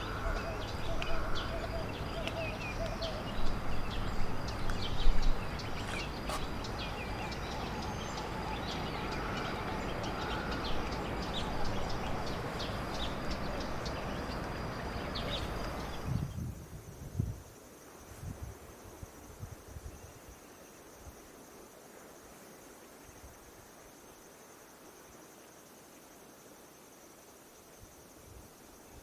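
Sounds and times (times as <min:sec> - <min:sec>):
birds chirping: 0:00.0 - 0:16.5.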